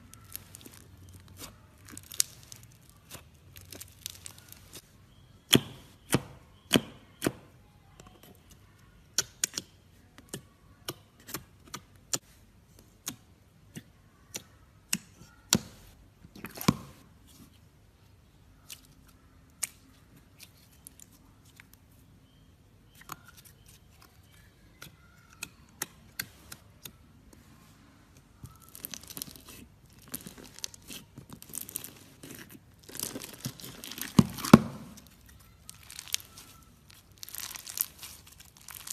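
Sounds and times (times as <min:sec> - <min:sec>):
slime popping and crackling: 0:00.0 - 0:04.8, 0:28.5 - 0:38.9.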